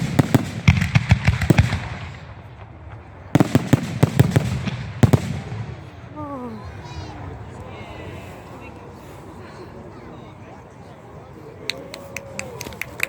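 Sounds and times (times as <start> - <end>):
fireworks banging: 0.0 - 6.2.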